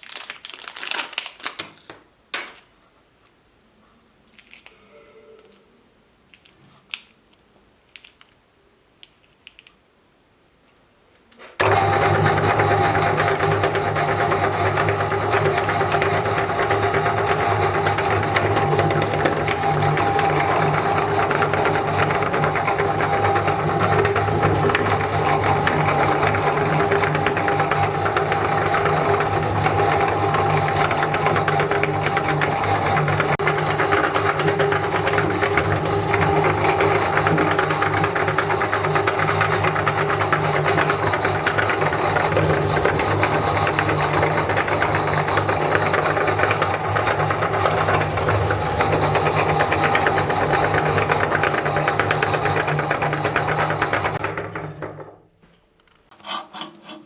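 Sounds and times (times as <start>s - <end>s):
electric meat grinder running: 11.6s - 55.0s.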